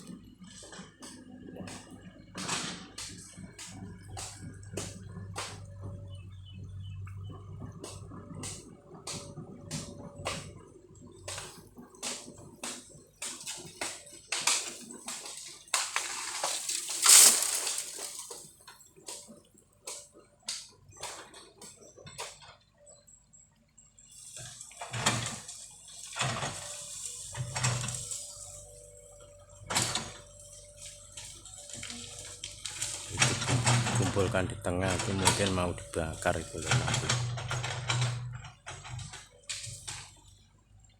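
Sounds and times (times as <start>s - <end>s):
faint machine hum: 0.0s - 40.9s
bamboo cracking and snapping: 12.1s - 18.4s.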